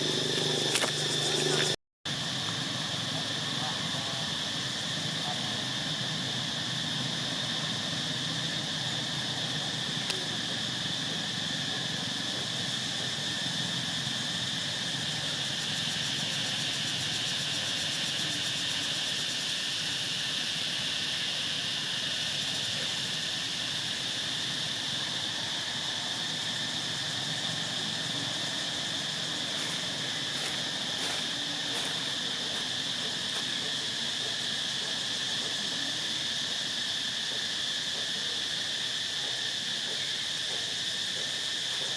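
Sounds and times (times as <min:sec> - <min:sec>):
insects chirring: 0:00.0 - 0:41.9.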